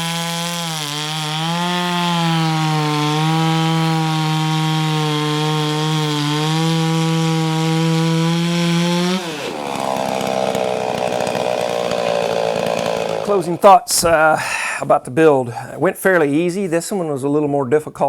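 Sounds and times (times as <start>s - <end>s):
chainsaw cutting wood: 0.0s - 13.8s.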